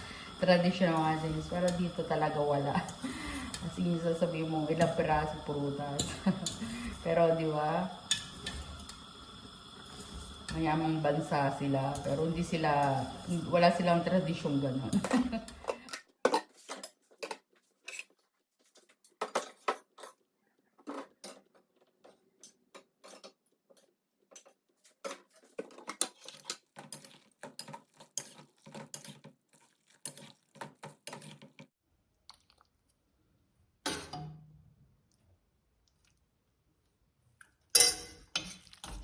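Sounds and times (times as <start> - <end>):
utensils clinking against dishes: 0.2 - 9.0, 9.9 - 16.9, 37.8 - 39.0.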